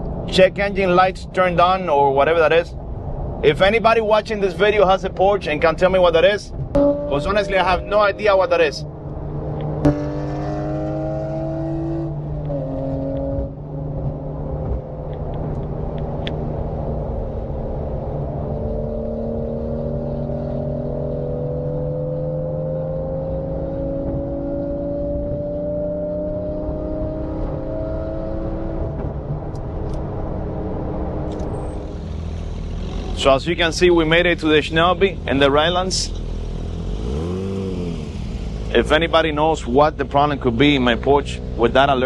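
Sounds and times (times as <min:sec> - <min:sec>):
car engine running: 0:04.0 - 0:21.5.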